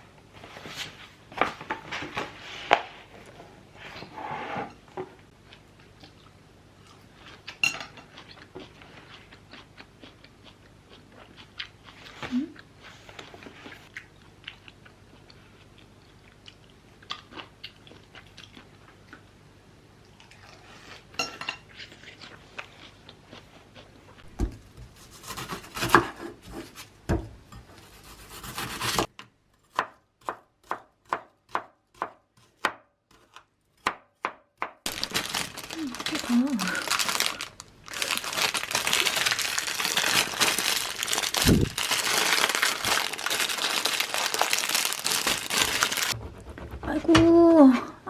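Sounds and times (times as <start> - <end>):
knife chopping on cutting board: 24.4 - 27.3, 28.2 - 29.1.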